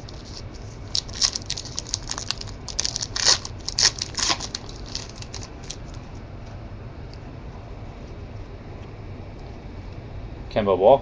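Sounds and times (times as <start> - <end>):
card pack wrapper tearing and crinkling: 0.0 - 6.0.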